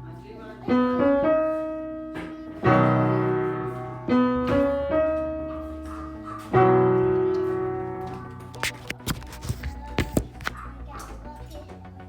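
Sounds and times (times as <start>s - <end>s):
slow piano music: 0.0s - 9.0s.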